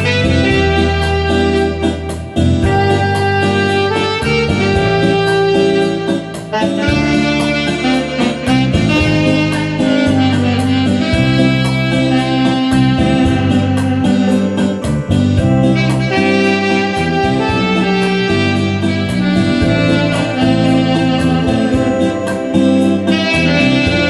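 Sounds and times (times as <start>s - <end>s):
backing track with drums: 0.0s - 24.0s
trumpet melody: 0.0s - 24.0s.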